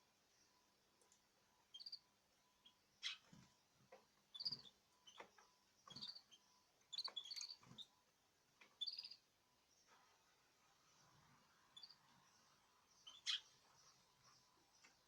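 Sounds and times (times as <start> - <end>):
small bird chirping: 1.6 - 3.6, 4.2 - 8.0, 8.6 - 10.0, 10.8 - 15.0.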